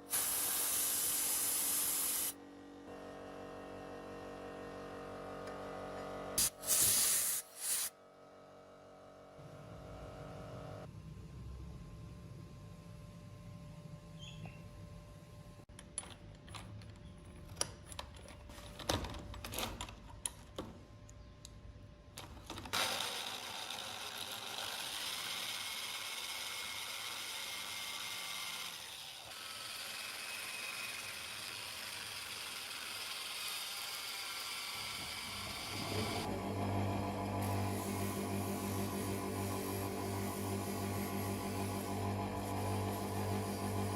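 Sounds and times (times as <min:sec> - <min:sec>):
steady hissing machine noise: 0:37.2 - 0:43.9.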